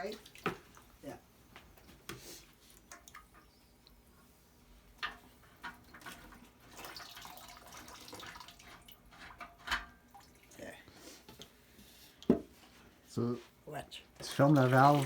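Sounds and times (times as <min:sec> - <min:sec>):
water splashing into a bucket: 0:05.0 - 0:10.7, 0:14.2 - 0:15.0.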